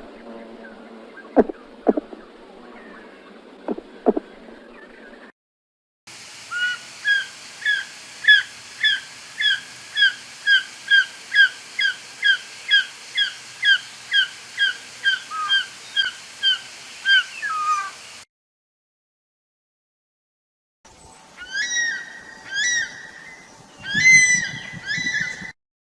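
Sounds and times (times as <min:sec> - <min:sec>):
bird of prey calling: 0:06.5 - 0:18.0, 0:21.4 - 0:25.5.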